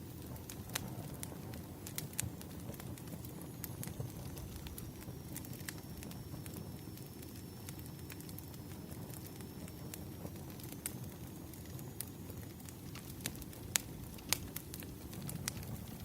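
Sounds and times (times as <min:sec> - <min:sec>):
wood fire crackling: 0:00.0 - 0:16.0
firewood popping: 0:00.2 - 0:16.0.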